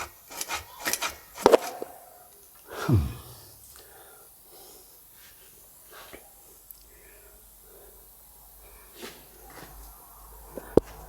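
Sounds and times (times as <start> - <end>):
person grunting with effort: 2.7 - 3.6.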